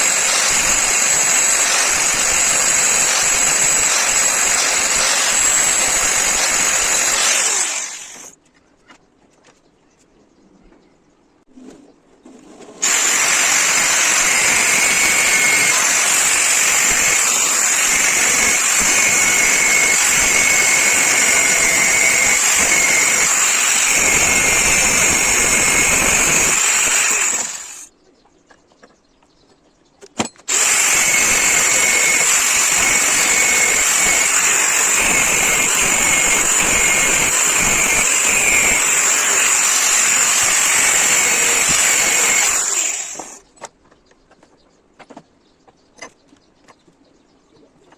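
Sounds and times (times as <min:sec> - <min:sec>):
electric power tool whining: 0:00.0 - 0:08.3, 0:12.8 - 0:27.9, 0:30.4 - 0:43.4.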